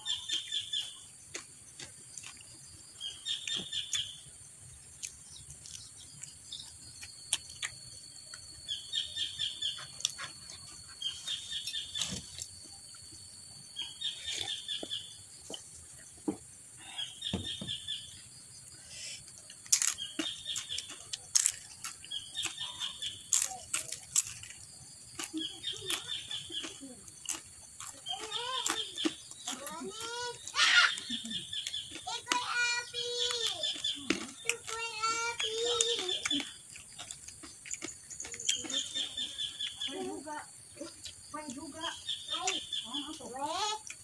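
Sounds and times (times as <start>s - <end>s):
chewing clicks: 0.1s - 4.1s, 4.9s - 8.7s, 9.4s - 13.2s, 19.3s - 32.5s, 33.2s - 39.9s, 40.7s - 43.2s, 43.8s - 44.0s
crunching fried cracker: 19.4s - 39.4s.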